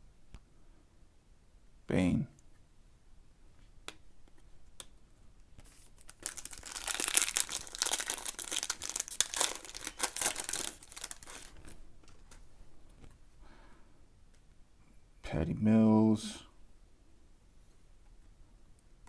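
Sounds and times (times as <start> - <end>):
plastic foil wrapper crinkling: 5.6 - 12.5.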